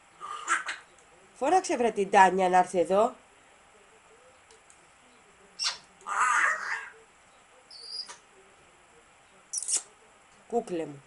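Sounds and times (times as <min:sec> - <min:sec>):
parrot rough call: 0:00.2 - 0:00.8, 0:05.6 - 0:07.0.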